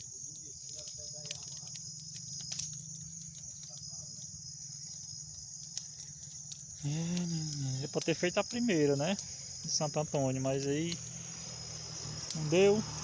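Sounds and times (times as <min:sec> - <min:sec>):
bonfire crackling and popping: 0:00.0 - 0:13.0
crickets chirring: 0:00.0 - 0:13.0.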